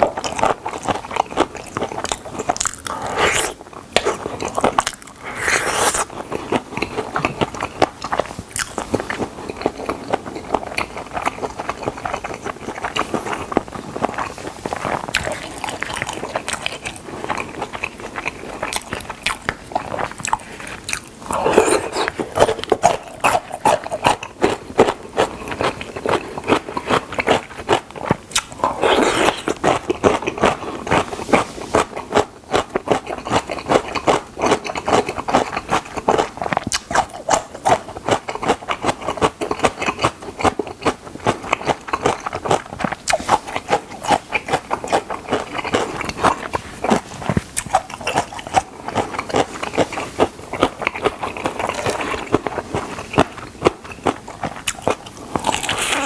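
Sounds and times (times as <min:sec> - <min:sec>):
crunchy chewing of fried chicken: 0:00.0 - 0:56.0.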